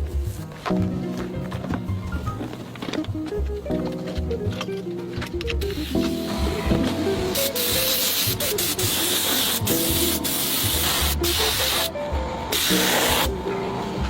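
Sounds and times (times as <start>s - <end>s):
background music: 0.0s - 14.0s
steady hiss: 5.7s - 11.9s.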